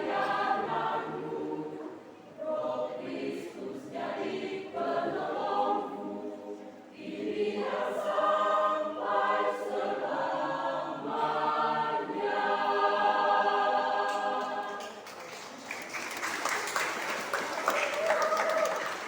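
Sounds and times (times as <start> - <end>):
choir singing held chords: 0.0 - 15.0.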